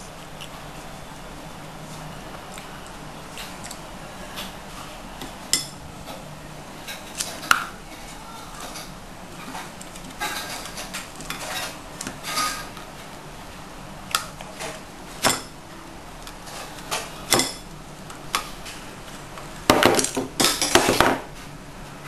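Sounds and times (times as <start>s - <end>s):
cutlery and dishes clinking: 8.6s - 12.8s, 16.5s - 17.7s, 19.8s - 21.2s.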